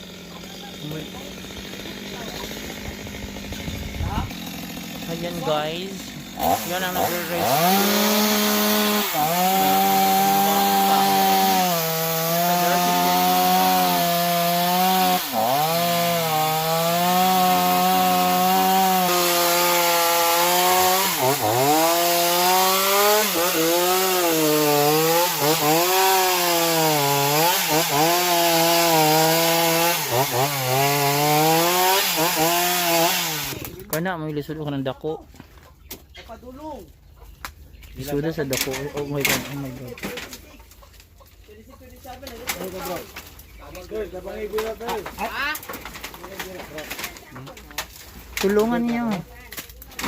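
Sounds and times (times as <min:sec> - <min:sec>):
chainsaw cutting wood: 0:00.0 - 0:33.9, 0:38.5 - 0:40.4.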